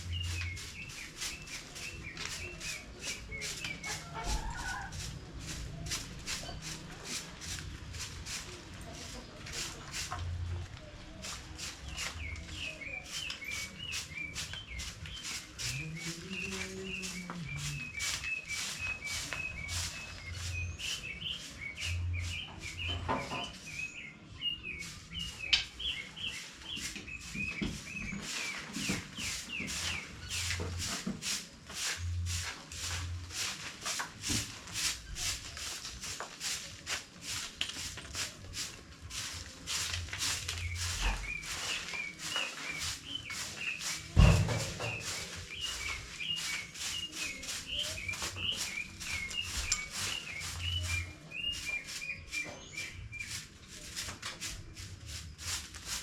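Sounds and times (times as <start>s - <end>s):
scratchy strokes: 0.0s - 23.9s, 24.7s - 56.0s
chickens chirping: 0.0s - 56.0s.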